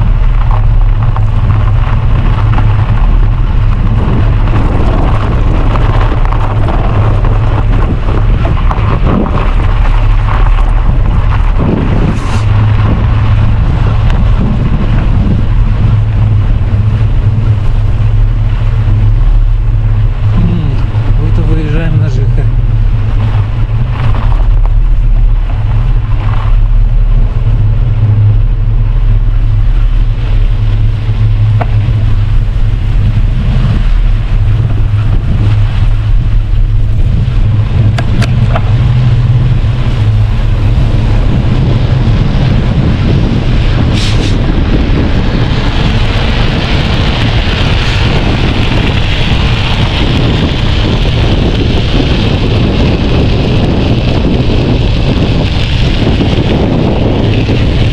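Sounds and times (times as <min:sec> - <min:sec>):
wind buffeting microphone: 0:00.0 - 0:57.9
bright hiss: 0:12.1 - 0:12.6, 0:43.9 - 0:44.6.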